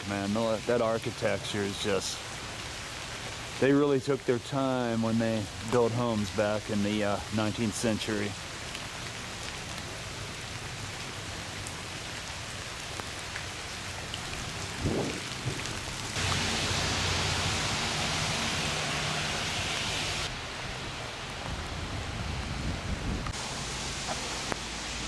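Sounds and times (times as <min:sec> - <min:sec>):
rain hissing: 0:00.0 - 0:25.0
short low thump: 0:14.8 - 0:16.1.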